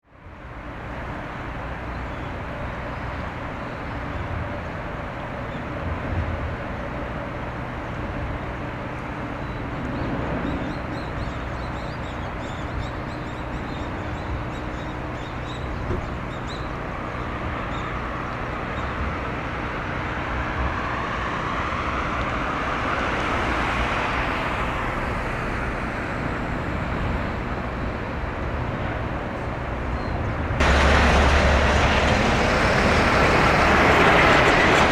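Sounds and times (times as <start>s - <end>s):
outdoor traffic noise: 0.0s - 34.9s
low hum: 6.3s - 13.2s
vehicle passing close by: 9.0s - 12.2s, 30.6s - 34.9s.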